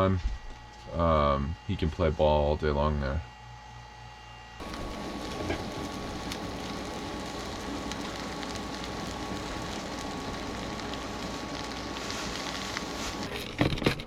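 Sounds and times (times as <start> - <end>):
food sizzling in a pan: 4.6 - 13.4.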